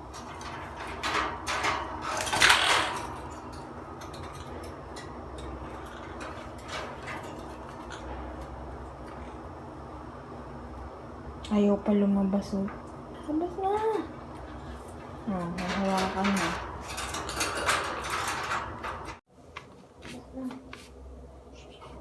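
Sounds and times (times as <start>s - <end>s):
wire cage rattling and clicking: 0.0s - 9.6s, 13.6s - 19.2s
steady low hum: 0.0s - 22.0s.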